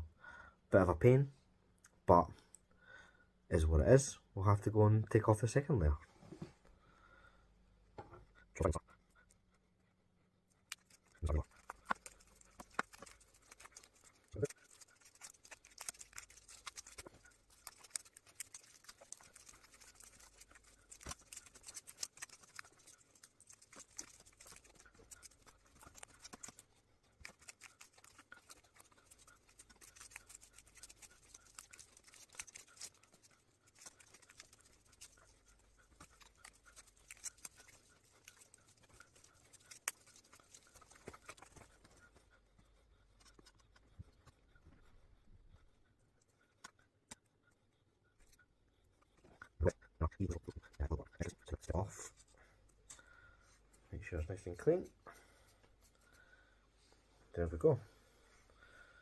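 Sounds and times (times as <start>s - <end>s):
tape peeling crackle: 10.7s - 42.0s.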